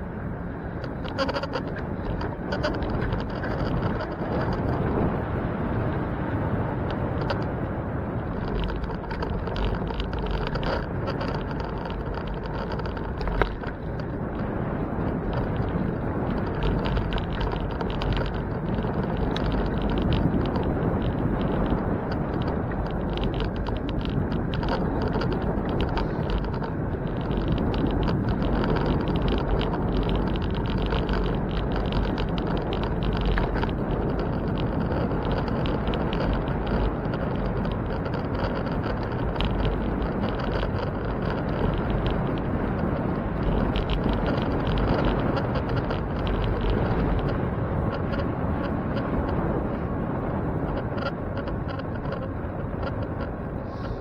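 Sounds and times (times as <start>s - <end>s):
bicycle road rumble: 0.0s - 54.0s
traffic noise: 0.0s - 54.0s
wind: 0.0s - 54.0s.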